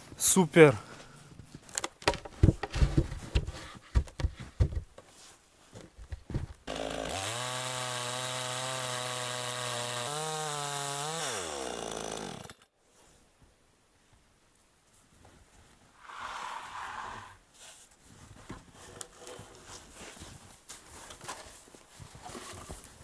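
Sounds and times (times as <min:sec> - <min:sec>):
sharp knocks and clatter: 0:01.9 - 0:05.0
chainsaw engine running: 0:06.7 - 0:12.6.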